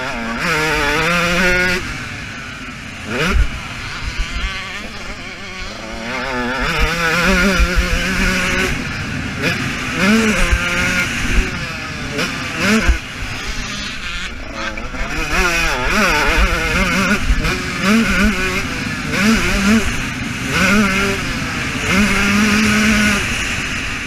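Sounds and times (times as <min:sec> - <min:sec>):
motocross engine revving: 0:00.0 - 0:24.0.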